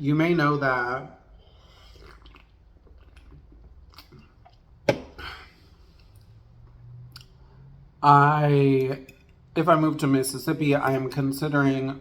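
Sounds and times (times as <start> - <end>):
wet mouth clicks: 7.1 - 7.4.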